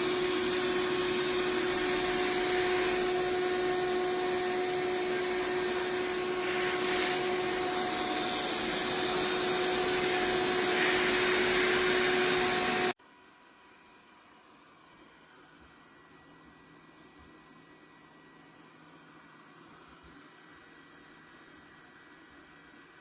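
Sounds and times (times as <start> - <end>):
robot vacuum whirring: 0.0 - 12.9.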